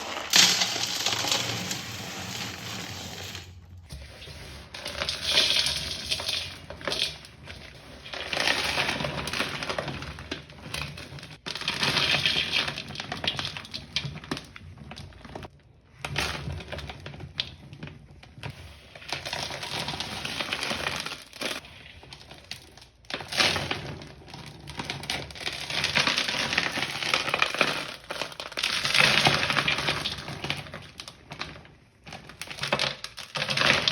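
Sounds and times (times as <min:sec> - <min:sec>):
powder balls crumbling: 0:00.0 - 0:03.8.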